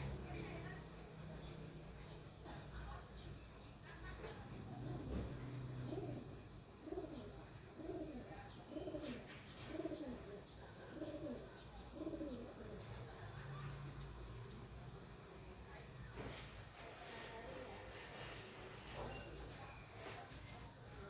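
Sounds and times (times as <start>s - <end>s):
dove cooing: 4.5s - 13.2s.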